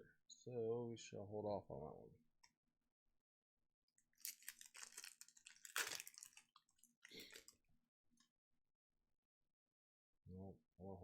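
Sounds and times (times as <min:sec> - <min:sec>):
foil card packs crinkling: 0:04.2 - 0:07.5.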